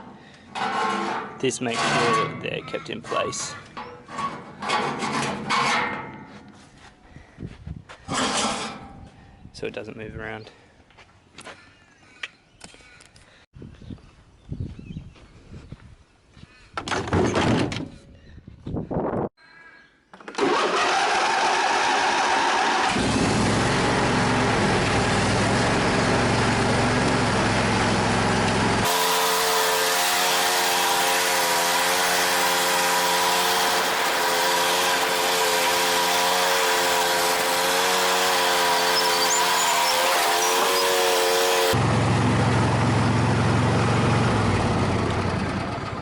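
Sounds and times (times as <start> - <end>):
loud knocks and clunks: 16.8 - 17.9
engine starting and running: 20.2 - 46.0.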